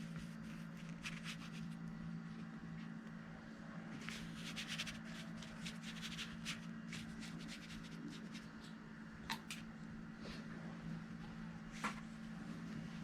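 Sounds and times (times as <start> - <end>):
paintbrush strokes on paper: 0.0 - 1.8, 4.0 - 8.5
steady low hum: 0.0 - 13.0.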